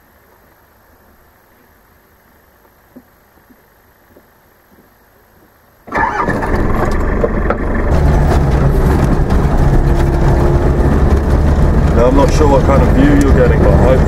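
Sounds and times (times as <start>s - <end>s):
vehicle engine starting and running: 5.9s - 14.0s.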